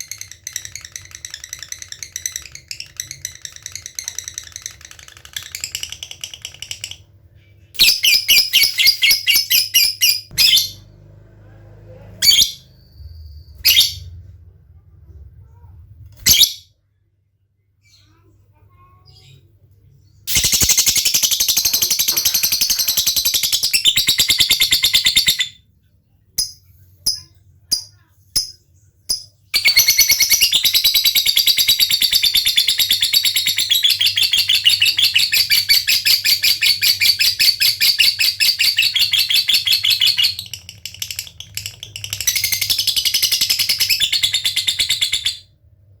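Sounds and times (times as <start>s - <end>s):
bird rapid chattering trill: 20.3s - 25.2s.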